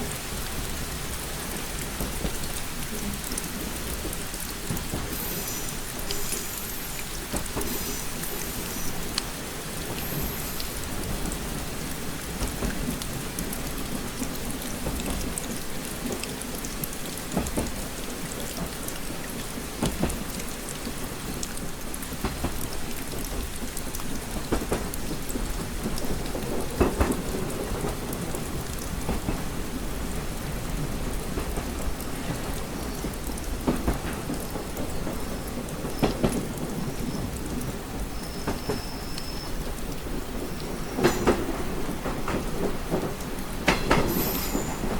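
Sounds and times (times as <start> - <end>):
rain tapping on window glass: 0.0 - 44.9.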